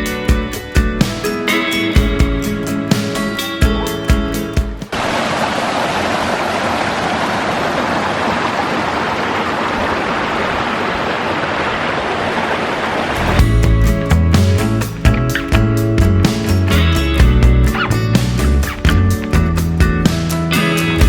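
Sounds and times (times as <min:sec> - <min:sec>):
strummed guitar music: 0:00.0 - 0:04.9, 0:13.2 - 0:21.0
water flowing: 0:04.8 - 0:19.8.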